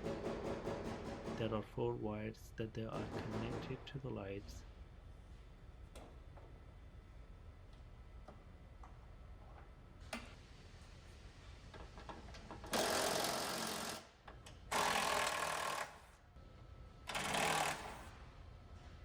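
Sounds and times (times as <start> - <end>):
cordless power tool bursts: 12.7 - 14.1, 14.7 - 16.0, 17.1 - 18.1.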